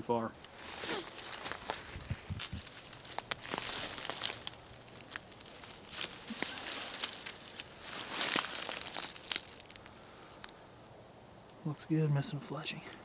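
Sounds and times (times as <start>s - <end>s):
footsteps through dry grass: 0.4s - 10.6s
twigs snapping: 0.4s - 10.6s.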